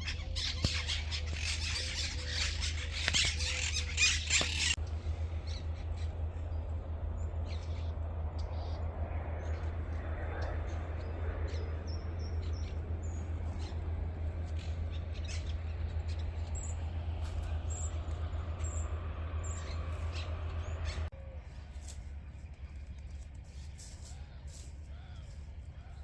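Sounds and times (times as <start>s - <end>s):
small birds chirping: 0.0s - 26.0s
steady low hum: 0.0s - 26.0s.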